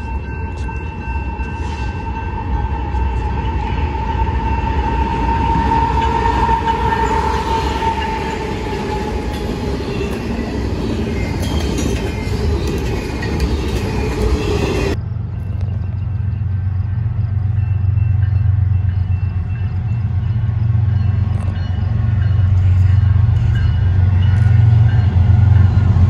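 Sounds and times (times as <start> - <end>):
steady high tone: 0.0 - 15.0
freight cars wheel and rail noise: 0.0 - 26.0
locomotives rumbling past: 0.9 - 26.0.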